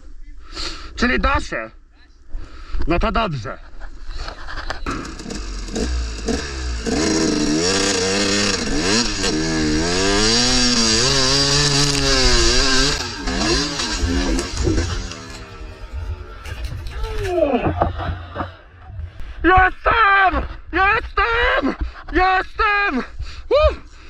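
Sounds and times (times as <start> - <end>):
two-stroke dirt bike revving: 4.8 - 16.4.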